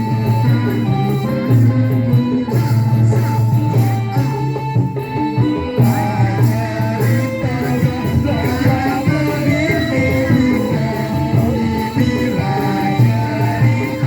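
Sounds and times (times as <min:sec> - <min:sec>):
drums: 0:00.0 - 0:14.0
live band music: 0:00.0 - 0:14.0
person singing: 0:05.2 - 0:14.0.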